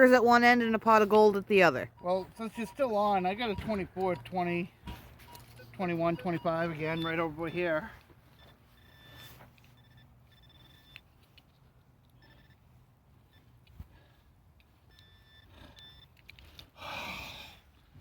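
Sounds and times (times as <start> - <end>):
metal detector beeps: 0.0 - 16.6.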